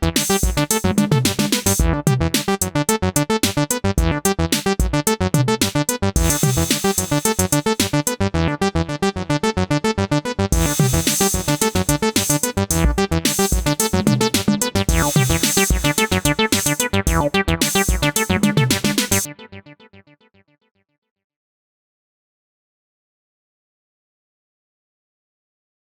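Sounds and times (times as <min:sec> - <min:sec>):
synthesizer bass line: 0:00.0 - 0:19.9
bright hissy synth layer: 0:06.2 - 0:08.1, 0:10.6 - 0:19.3.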